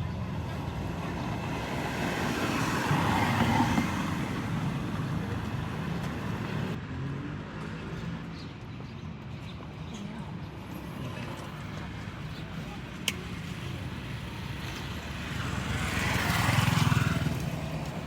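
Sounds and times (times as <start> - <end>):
vehicle passing: 14.3 - 18.0.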